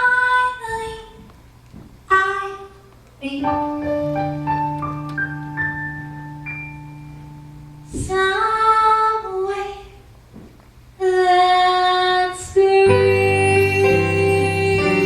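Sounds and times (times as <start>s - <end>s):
woman singing a slow ballad: 11.0s - 15.0s
band accompaniment: 13.1s - 15.0s.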